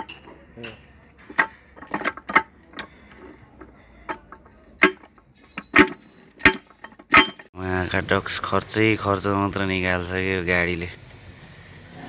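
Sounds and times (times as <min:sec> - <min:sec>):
metal parts clinking: 0:00.0 - 0:07.5.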